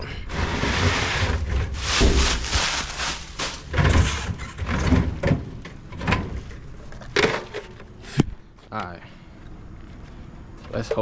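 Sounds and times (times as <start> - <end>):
cases rustling and scraping: 0.2 - 5.4.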